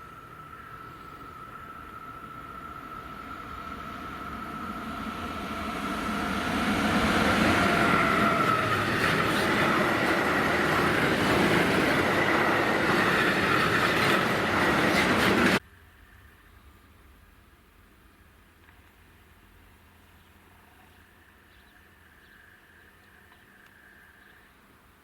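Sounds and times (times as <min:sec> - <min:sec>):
train passing: 0:00.0 - 0:15.6.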